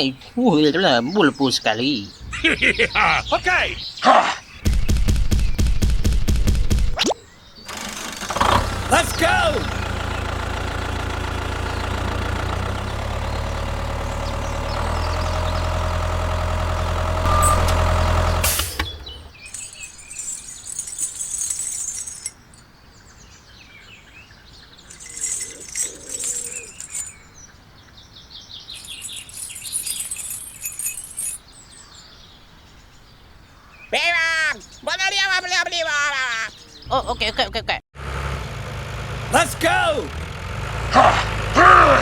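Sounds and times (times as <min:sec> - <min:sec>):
birds chirping: 0:00.0 - 0:37.7, 0:39.2 - 0:40.1
engine running: 0:07.7 - 0:21.3, 0:38.0 - 0:42.0.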